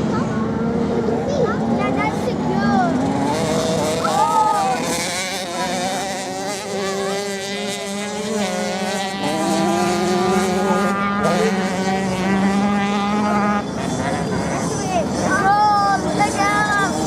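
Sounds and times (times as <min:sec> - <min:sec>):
motorcycle engines droning: 0:00.0 - 0:17.0.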